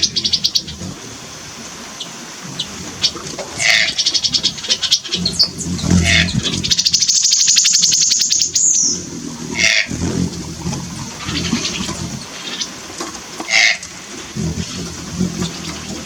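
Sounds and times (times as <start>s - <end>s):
birds chirping: 0.0s - 16.0s
bird high trill: 3.6s - 9.0s.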